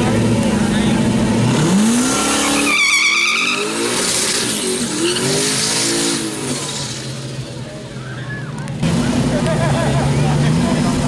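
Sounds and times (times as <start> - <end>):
car engine revving: 0.0 - 11.0
tyres squealing: 2.2 - 8.5.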